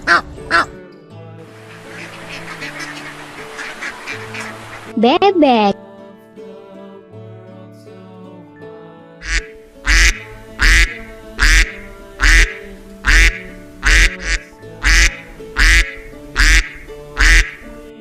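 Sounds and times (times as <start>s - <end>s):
duck quacking: 0.0s - 0.7s, 1.6s - 5.8s, 9.2s - 17.8s
background music: 0.0s - 18.0s.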